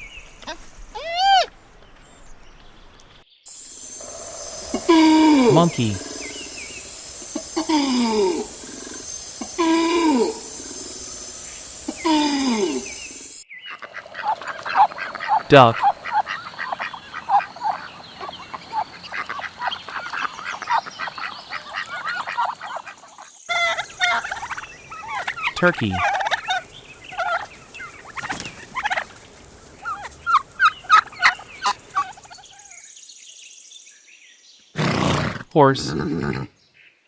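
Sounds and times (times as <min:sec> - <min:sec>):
turkeys gobbling: 0:01.0 - 0:01.5, 0:13.8 - 0:32.7
ducks quacking: 0:13.7 - 0:32.7.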